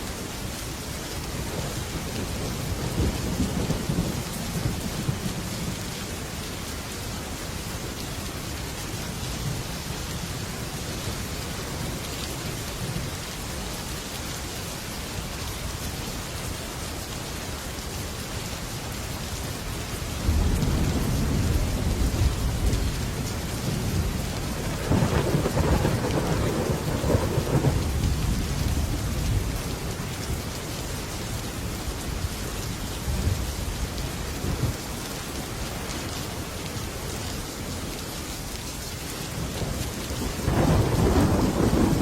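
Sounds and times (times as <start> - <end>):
heavy rain on metal roof: 0.0 - 42.0
thunder rolling: 20.2 - 28.8, 40.4 - 42.0.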